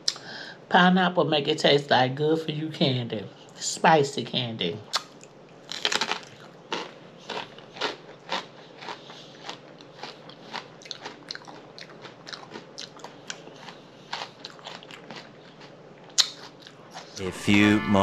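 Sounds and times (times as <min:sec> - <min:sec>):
crunchy chewing: 0:04.9 - 0:17.2.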